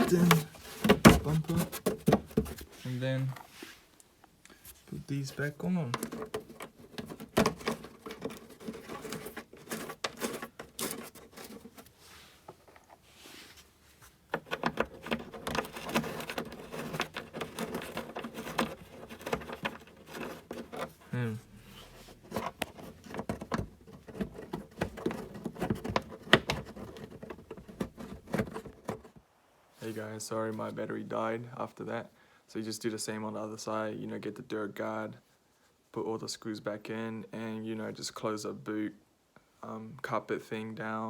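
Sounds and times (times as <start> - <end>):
clicks and knocks of handled parts: 5.9 - 11.9, 14.3 - 21.0, 22.2 - 29.2.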